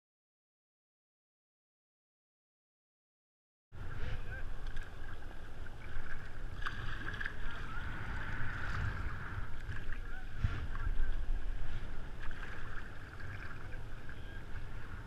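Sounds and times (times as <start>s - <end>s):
low rumble of surf: 3.8s - 15.0s
sea water rushing and splashing: 3.8s - 15.0s.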